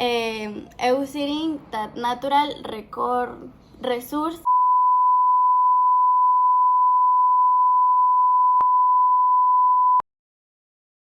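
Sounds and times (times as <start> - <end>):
steady electronic beep tone: 4.5 - 10.0.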